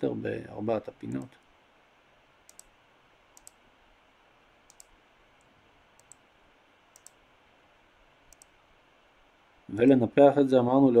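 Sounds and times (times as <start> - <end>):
low steady hiss: 0.0 - 11.0
computer mouse clicks: 2.5 - 2.7, 3.4 - 3.6, 4.7 - 6.2, 6.9 - 7.2, 8.3 - 8.6.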